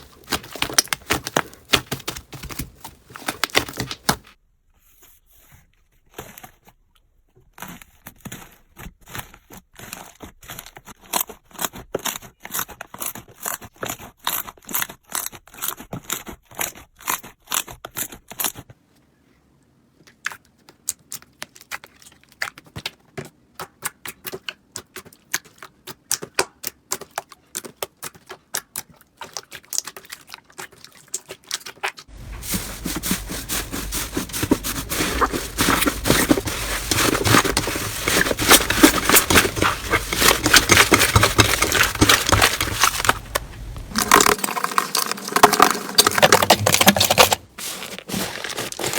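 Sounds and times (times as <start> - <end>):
crackling and popping clicks: 32.1 - 47.5.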